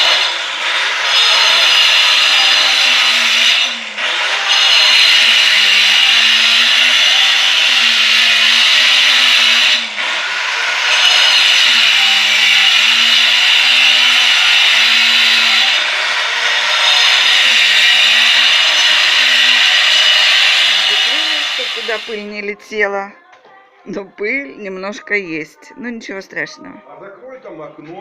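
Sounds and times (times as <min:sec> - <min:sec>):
power tool cutting into wall: 0:00.0 - 0:22.3.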